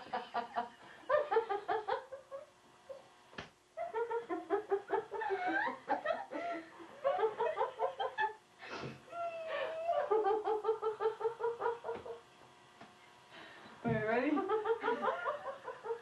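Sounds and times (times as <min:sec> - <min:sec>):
women laughing hard: 0:00.0 - 0:03.0, 0:03.8 - 0:08.4, 0:09.1 - 0:12.2, 0:14.3 - 0:16.0.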